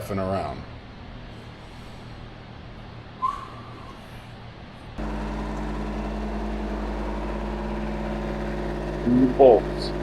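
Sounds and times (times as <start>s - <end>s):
short squeak: 3.2s - 4.2s
diesel engine idling: 5.0s - 10.0s.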